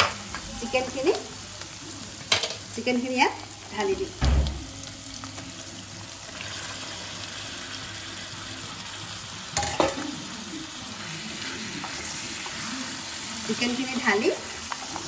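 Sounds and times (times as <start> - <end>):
chicken sizzling in oil: 0.0 - 15.0
kitchenware clatter: 2.3 - 2.6, 9.6 - 10.1.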